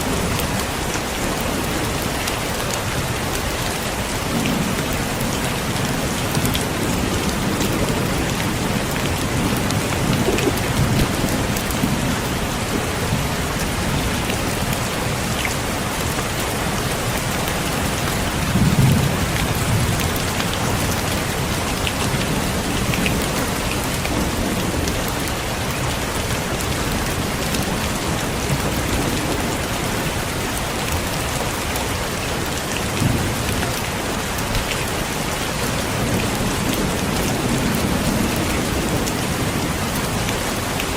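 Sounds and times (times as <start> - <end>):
heavy rain: 0.0 - 40.9
low thunder rumbling: 3.9 - 30.3.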